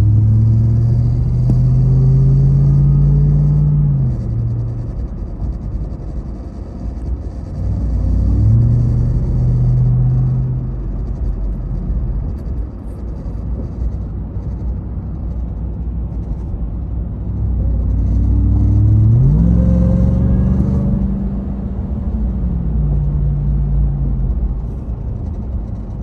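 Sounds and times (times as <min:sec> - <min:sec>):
low vibrating tone: 0:00.0 - 0:26.0
road rumble: 0:00.0 - 0:26.0
truck engine drone: 0:00.0 - 0:26.0.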